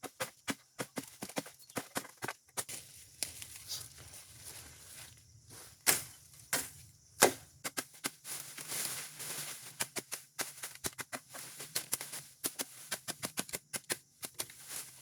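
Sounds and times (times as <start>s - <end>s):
sharp knocks and cracks: 5.8s - 8.2s, 9.7s - 14.6s.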